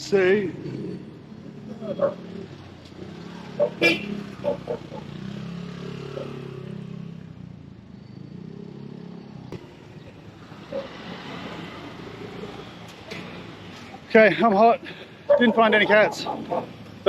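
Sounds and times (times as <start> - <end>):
small vehicle engine passing: 0.6 - 14.0.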